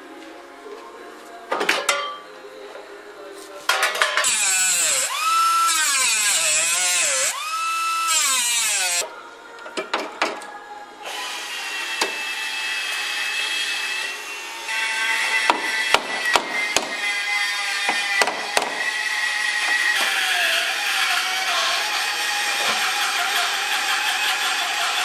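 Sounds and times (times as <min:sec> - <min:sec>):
power tool motor whining: 0:04.2 - 0:09.0, 0:18.8 - 0:25.0.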